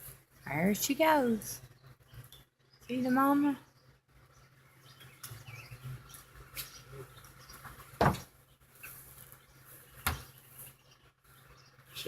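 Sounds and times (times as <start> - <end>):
sharp knocks: 8.0 - 8.3.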